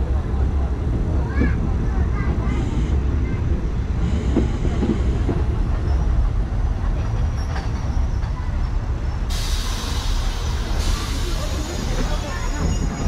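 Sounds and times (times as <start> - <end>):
train rumble from on board: 0.0 - 13.0
hiss: 9.3 - 12.7.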